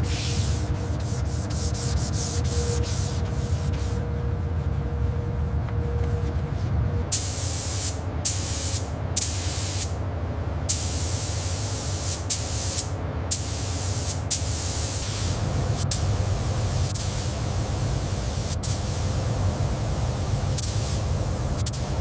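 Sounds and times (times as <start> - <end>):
low hum: 0.0 - 7.1
air spray gun hissing: 7.1 - 9.9, 10.7 - 22.0.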